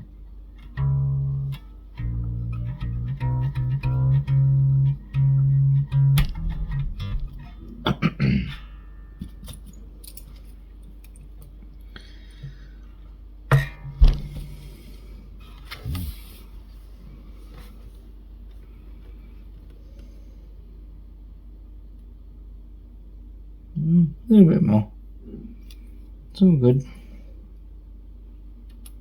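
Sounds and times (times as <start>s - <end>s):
bass guitar low note plucked: 0.6s - 9.4s, 13.5s - 14.7s
sharp knocks: 13.5s - 14.6s.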